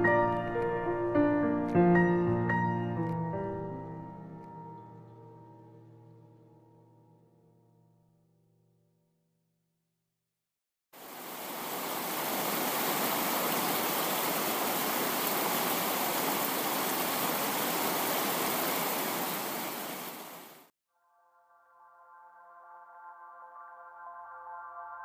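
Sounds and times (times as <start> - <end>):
heavy rainfall: 11.0 - 20.7.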